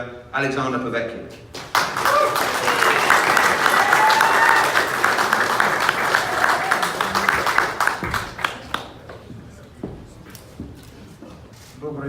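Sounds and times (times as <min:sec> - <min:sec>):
audience applauding: 0:01.5 - 0:09.3
voices: 0:01.8 - 0:09.8.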